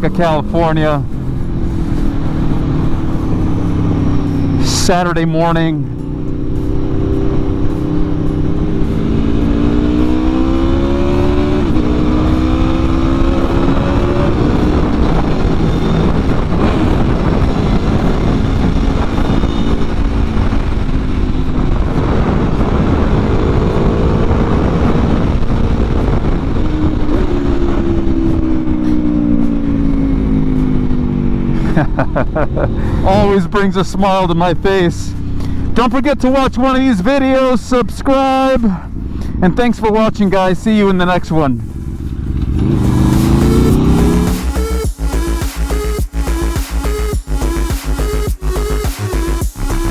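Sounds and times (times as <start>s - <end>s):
wind rush: 0.0s - 31.6s, 41.5s - 45.0s
motorcycle engine revving: 0.0s - 49.9s.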